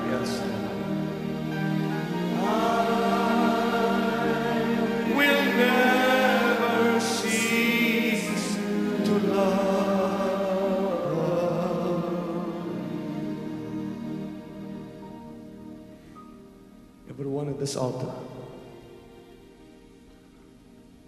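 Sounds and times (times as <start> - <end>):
choir and congregation singing: 0.0 - 15.0.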